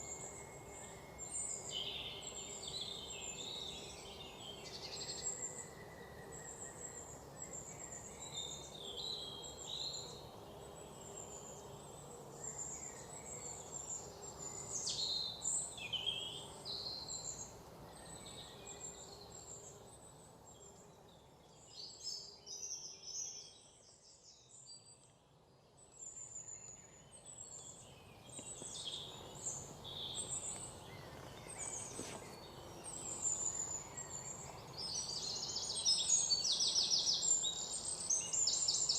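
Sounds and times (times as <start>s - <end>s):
faint background hiss: 0.0s - 38.9s.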